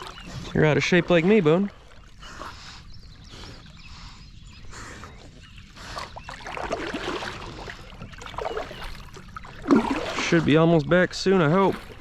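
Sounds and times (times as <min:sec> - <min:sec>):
kayak paddle splashing in water: 0:05.9 - 0:12.0.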